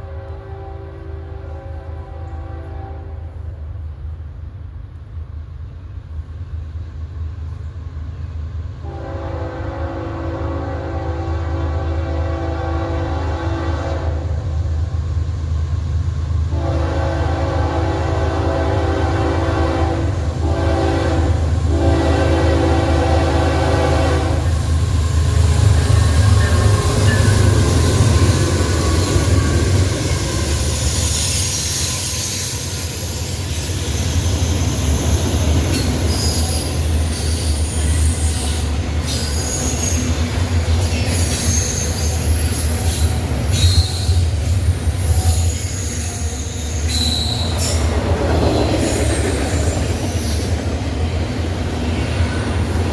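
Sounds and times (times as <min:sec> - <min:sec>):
locomotive horn: 0:00.0 - 0:03.6, 0:08.8 - 0:14.6, 0:16.5 - 0:24.7, 0:25.3 - 0:31.2
train rumbling past: 0:00.0 - 0:52.9
train wheel squeal: 0:20.8 - 0:52.9.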